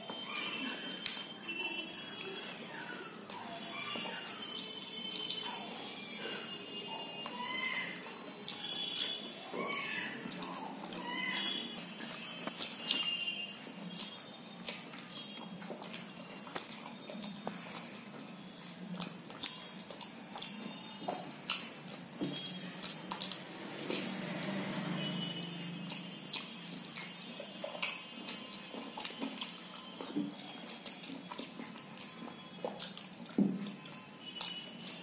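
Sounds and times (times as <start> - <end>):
mouth clicks and smacks chewing: 0.0 - 35.0.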